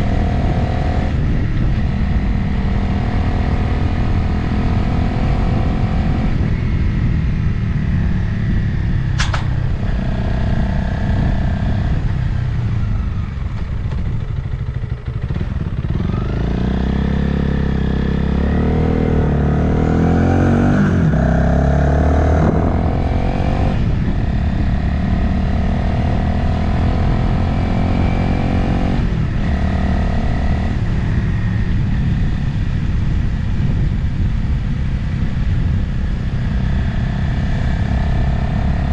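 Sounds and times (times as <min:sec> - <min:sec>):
motorcycle engine running: 0:00.0 - 0:38.9
wind rushing over microphone: 0:00.0 - 0:38.9
sharp click: 0:09.2 - 0:09.6.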